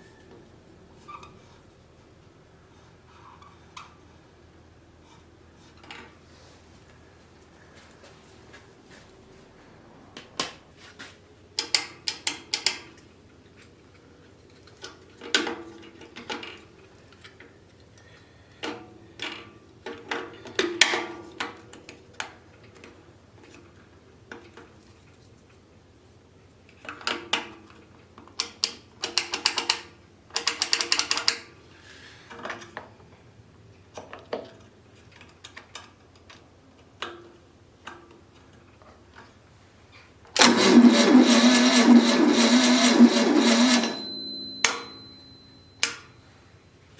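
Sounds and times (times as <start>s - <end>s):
rapid clicking bursts: 40.4s - 44.0s
mechanical clicks and clatter: 40.4s - 45.0s.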